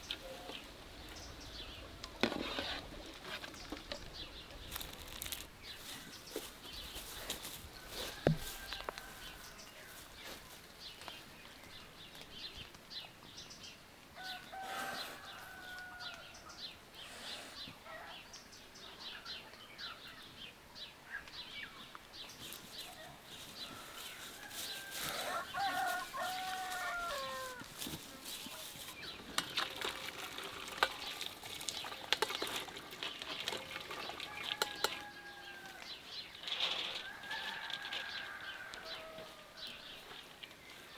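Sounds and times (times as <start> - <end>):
rooster crowing: 14.2 - 16.3, 23.7 - 27.7, 34.3 - 35.9, 37.0 - 39.6.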